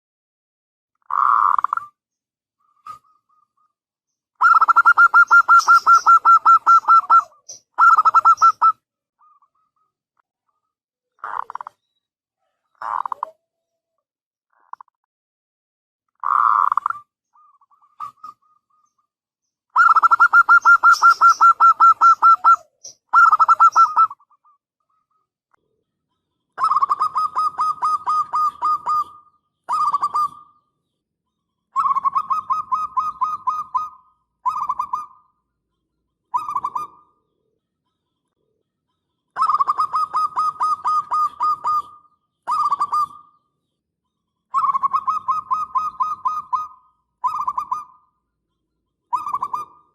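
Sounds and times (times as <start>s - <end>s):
dove cooing: 4.4s - 9.9s, 12.8s - 13.4s, 19.8s - 24.5s, 26.6s - 30.6s, 31.8s - 35.2s, 36.4s - 37.2s, 39.4s - 43.3s, 44.5s - 48.0s, 49.1s - 49.9s.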